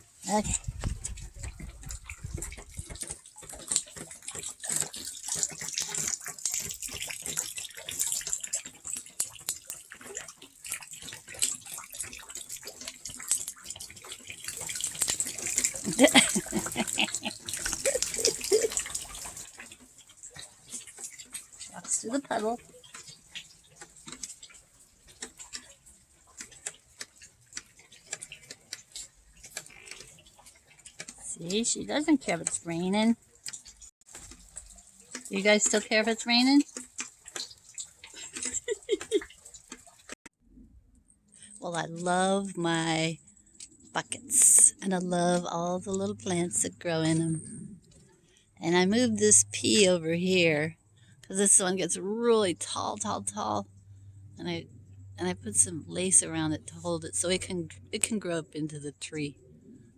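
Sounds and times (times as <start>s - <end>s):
rain pattering and splashing: 0.0s - 40.3s, 41.4s - 53.6s.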